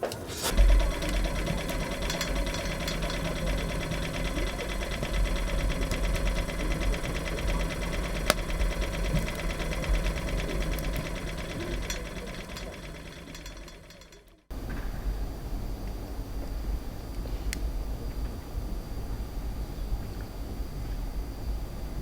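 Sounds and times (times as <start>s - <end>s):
engine running with knock: 0.4s - 15.3s.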